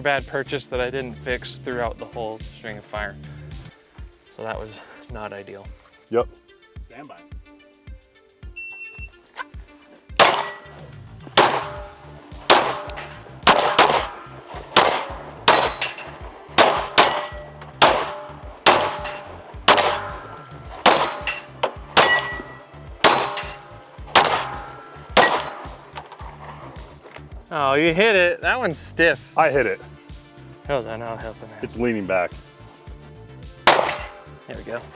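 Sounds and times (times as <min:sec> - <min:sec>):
steel plate ringing: 0:10.2 - 0:26.0, 0:33.7 - 0:34.4
gunshots: 0:10.2 - 0:27.0, 0:33.6 - 0:34.4.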